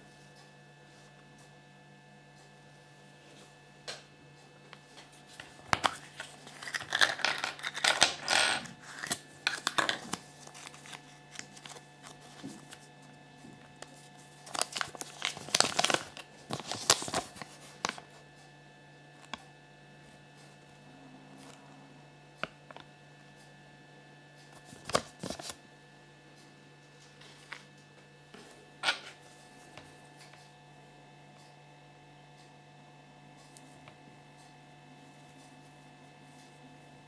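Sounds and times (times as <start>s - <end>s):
packaging crinkling and tearing: 5.3s - 12.8s, 13.8s - 18.1s, 24.7s - 25.6s.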